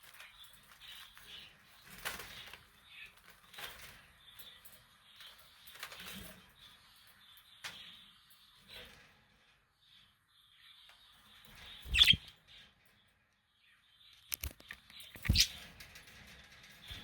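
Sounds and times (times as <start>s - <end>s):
budgies chattering: 11.8s - 12.2s, 15.2s - 15.6s.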